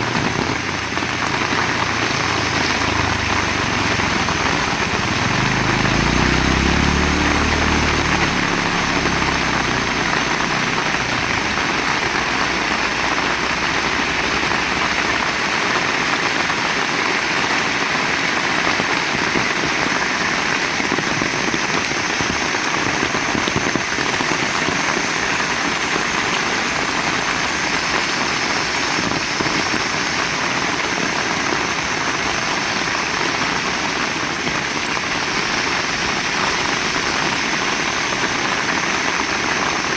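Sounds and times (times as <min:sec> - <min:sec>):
heavy rain falling: 0:00.0 - 0:39.9
low rumble: 0:03.2 - 0:14.2.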